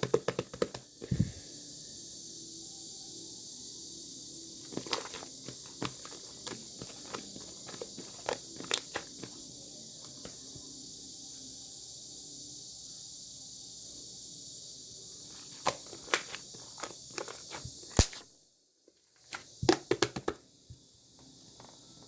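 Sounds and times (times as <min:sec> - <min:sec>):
steady high hiss: 0:00.3 - 0:18.3.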